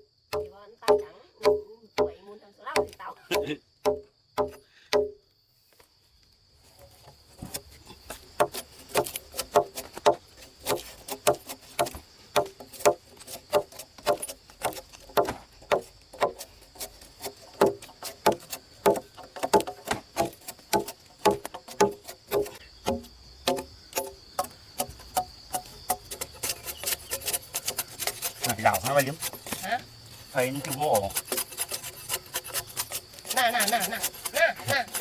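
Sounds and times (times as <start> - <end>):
sharp knocks: 0.3 - 2.2, 2.8 - 5.2, 8.4 - 16.4, 17.3 - 27.0.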